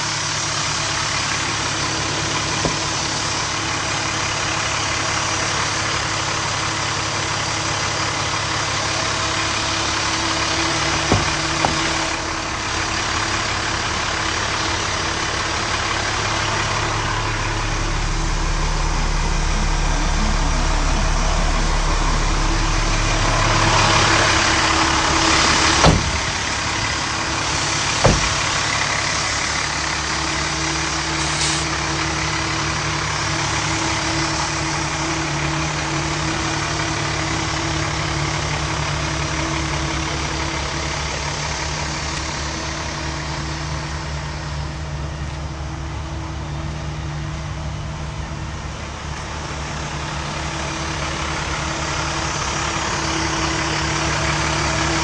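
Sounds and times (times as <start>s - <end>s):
diesel engine idling: 0.0s - 55.0s
sharp knocks: 2.3s - 3.4s, 10.6s - 12.2s, 25.8s - 27.0s, 28.0s - 28.7s.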